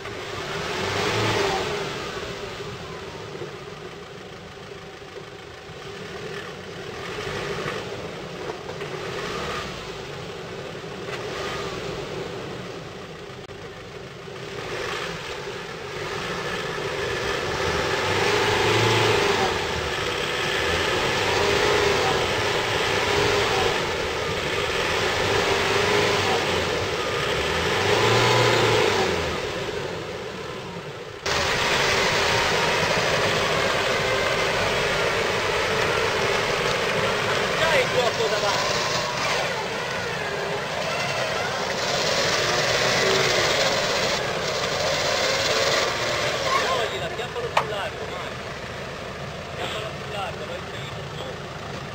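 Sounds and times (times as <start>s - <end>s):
diesel engine revving under load: 0.0s - 51.9s
steady loud engine drone: 0.0s - 51.9s.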